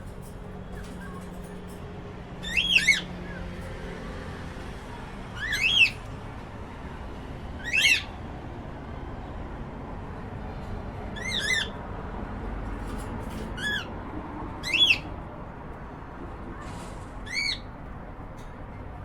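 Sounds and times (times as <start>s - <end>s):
cockatiel chirping: 2.4s - 3.4s, 5.4s - 6.0s, 7.6s - 8.1s, 11.2s - 11.8s, 14.6s - 15.1s.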